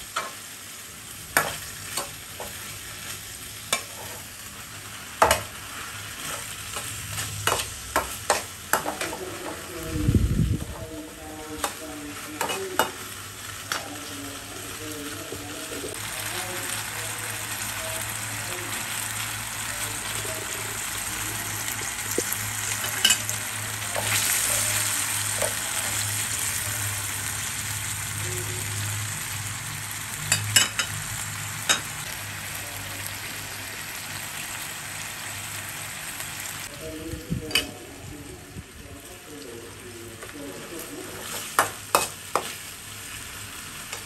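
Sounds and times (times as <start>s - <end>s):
beef sizzling in oil: 0.0s - 9.8s, 15.8s - 36.7s.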